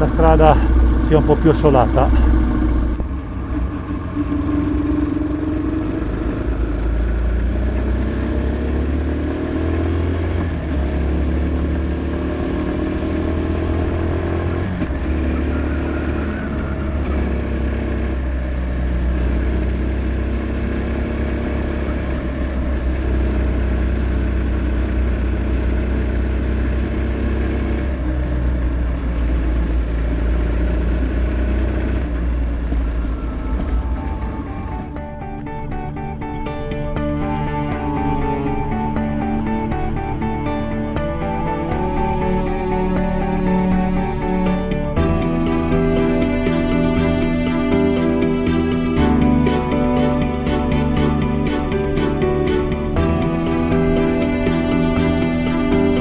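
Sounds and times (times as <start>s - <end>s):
motorcycle engine revving: 0.0s - 36.1s.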